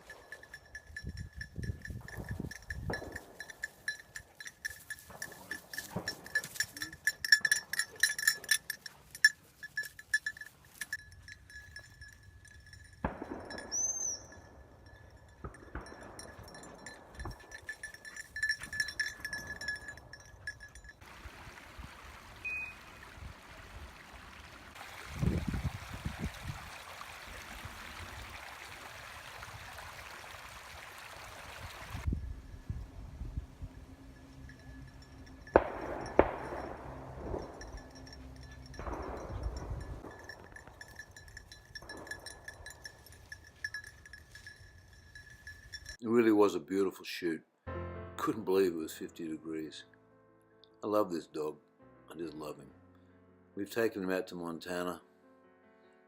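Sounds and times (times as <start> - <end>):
collar bell jingling: 0.0 - 21.1, 32.0 - 46.0.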